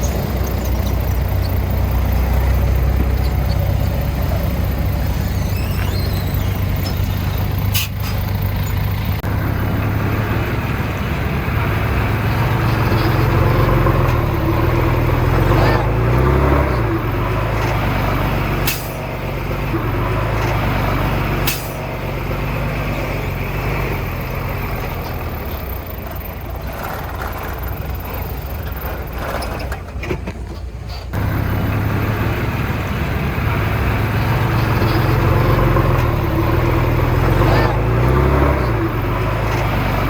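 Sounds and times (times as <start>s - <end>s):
heavy diesel engine running: 0.0s - 40.0s.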